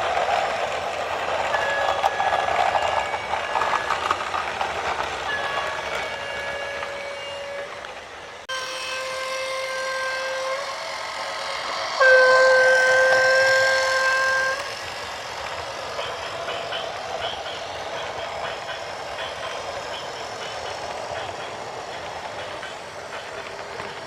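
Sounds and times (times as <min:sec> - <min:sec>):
horn blast: 0:08.5 - 0:10.8, 0:12.0 - 0:14.7.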